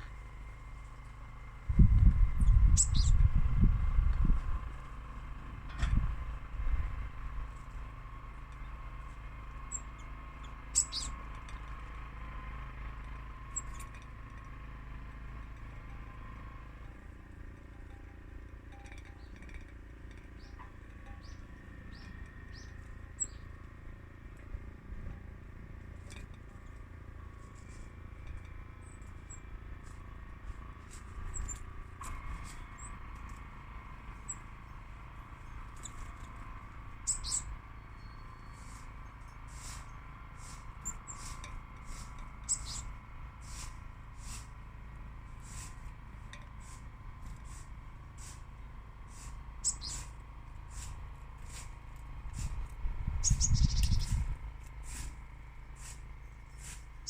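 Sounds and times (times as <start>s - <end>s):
steady low rumble: 0.0s - 9.1s, 45.3s - 55.2s
small birds chirping: 0.0s - 57.0s.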